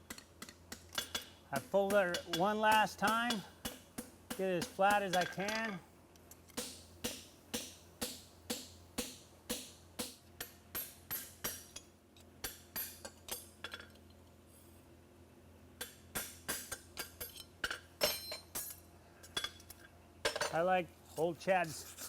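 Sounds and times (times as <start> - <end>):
hammer striking horseshoe on anvil: 0.0 - 5.8, 6.5 - 13.8, 15.8 - 18.8.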